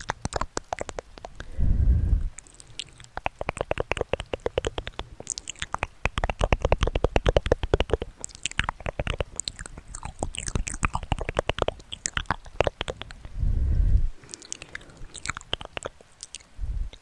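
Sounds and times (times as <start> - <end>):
crisp clicks and taps: 2.4 - 13.2.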